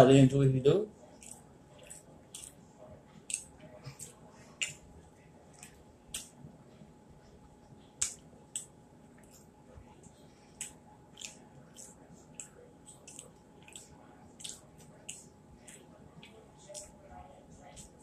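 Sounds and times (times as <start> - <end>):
mouth clicks and smacks: 1.2 - 2.6, 3.2 - 4.9, 5.5 - 6.4, 8.0 - 9.5, 10.5 - 16.9
person chewing fried fish: 1.2 - 2.6, 3.2 - 4.9, 5.5 - 6.4, 10.5 - 16.9.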